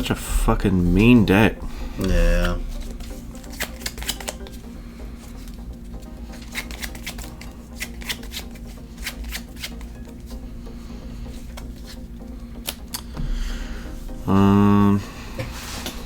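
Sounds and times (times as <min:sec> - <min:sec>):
cards clicking and flicking: 0:02.7 - 0:04.6, 0:05.4 - 0:10.2, 0:12.6 - 0:13.2.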